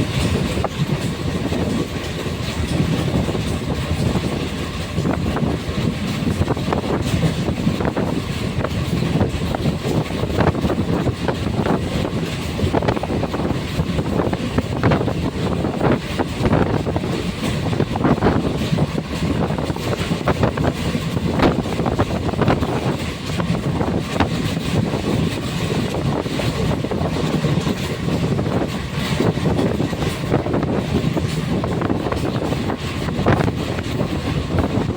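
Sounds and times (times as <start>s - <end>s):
train rumbling: 0.0s - 34.9s
train wheels clacking on rails: 0.0s - 34.9s.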